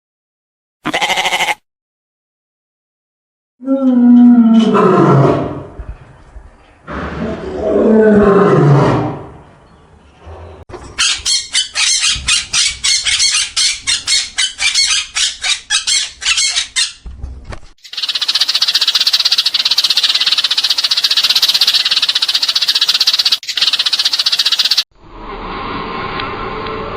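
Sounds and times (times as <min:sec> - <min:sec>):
falling drawn-out animal calls: 0:00.8 - 0:01.6
fast rhythmic high chirping: 0:17.8 - 0:24.8.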